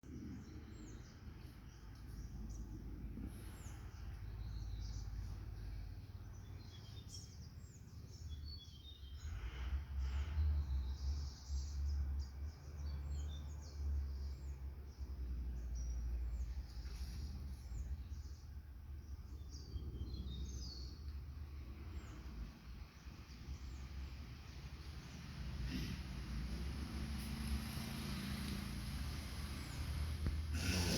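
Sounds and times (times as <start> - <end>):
small birds chirping: 0.0 - 30.9.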